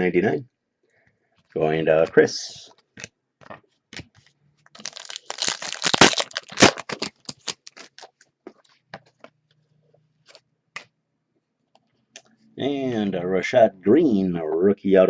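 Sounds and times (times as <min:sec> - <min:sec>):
cards clicking and rustling: 0:02.8 - 0:08.3
foil pack tearing and crinkling: 0:04.8 - 0:08.2.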